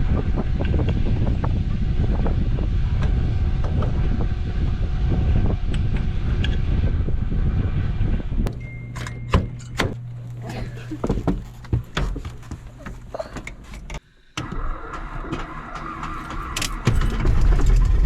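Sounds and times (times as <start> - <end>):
wind noise: 0.0 - 8.6
quiet steady hum: 0.0 - 14.8
vehicle rumble: 0.0 - 18.0.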